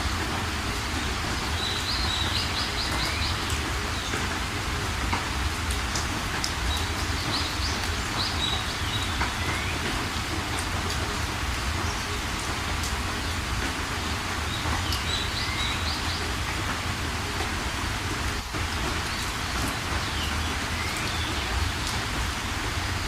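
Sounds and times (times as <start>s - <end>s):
steady rain falling: 0.0s - 23.0s
birds chirping: 1.2s - 4.2s, 6.4s - 10.1s, 14.5s - 16.6s.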